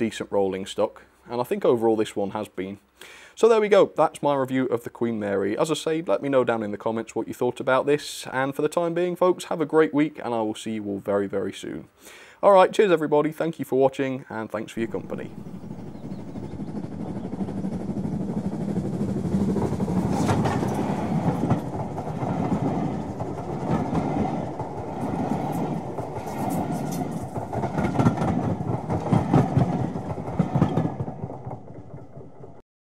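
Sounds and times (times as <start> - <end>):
train rumble: 14.7 - 32.6
wheels clattering over rail joints: 14.8 - 32.6.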